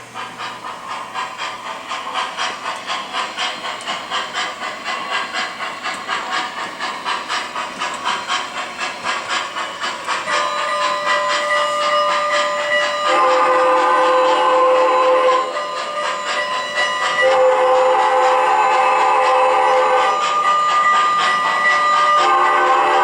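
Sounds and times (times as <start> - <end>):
model steam locomotive chuffing: 0.0 - 23.0
locomotive whistle: 10.3 - 23.0.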